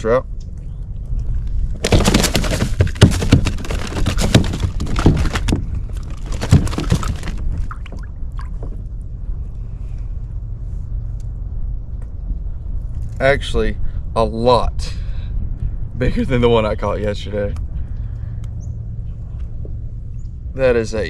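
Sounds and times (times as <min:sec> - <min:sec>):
steady low rumble: 0:00.0 - 0:21.0
knocks against a kayak: 0:01.8 - 0:08.8
water splashing: 0:01.8 - 0:08.8.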